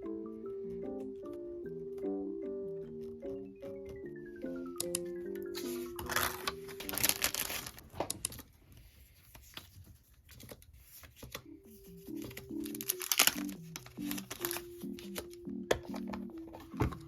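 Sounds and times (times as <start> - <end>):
packaging crinkling and tearing: 6.1 - 8.5, 12.2 - 14.7.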